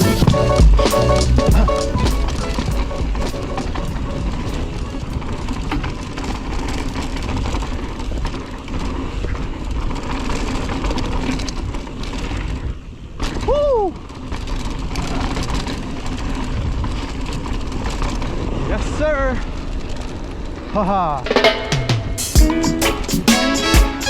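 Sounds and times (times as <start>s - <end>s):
bike rattling and clicking: 0.0s - 18.6s
bike tyres on dirt: 0.0s - 20.8s.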